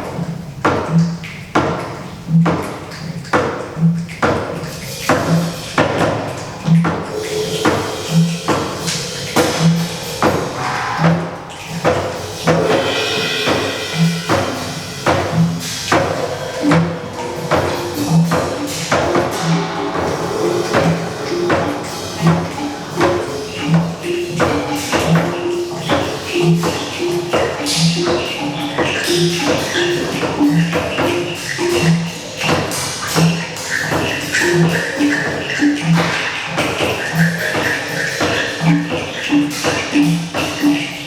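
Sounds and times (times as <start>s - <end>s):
tapped and shaken percussion: 0.0s - 41.0s
short repeated pitched notes: 4.7s - 41.0s
low drum strikes: 5.1s - 33.5s.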